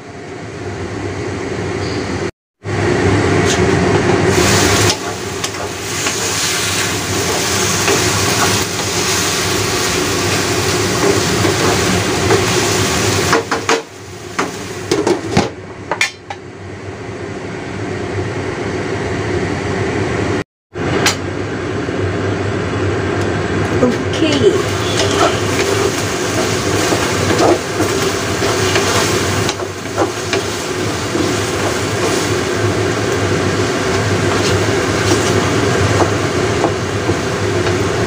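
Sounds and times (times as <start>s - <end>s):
wooden spatula scraping wok: 4.3s - 13.8s, 24.3s - 38.0s
mushrooms sizzling in a wok: 4.3s - 15.3s, 24.4s - 38.0s.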